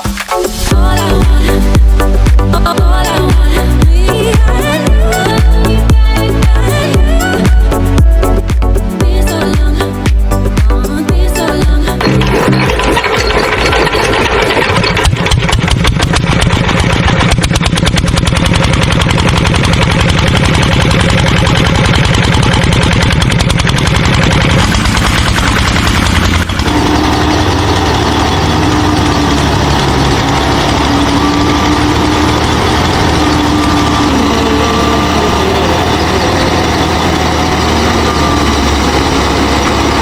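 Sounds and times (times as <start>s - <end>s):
small engine running: 0.0s - 40.0s
steady hum: 24.4s - 40.0s.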